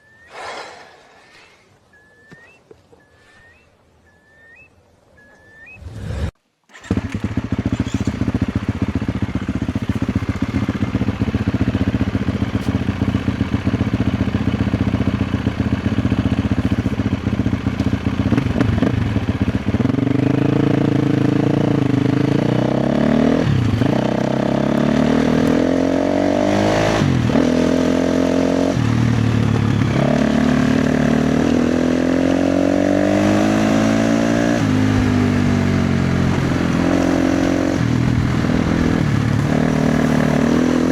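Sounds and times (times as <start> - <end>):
dirt bike engine revving: 5.6 - 40.9.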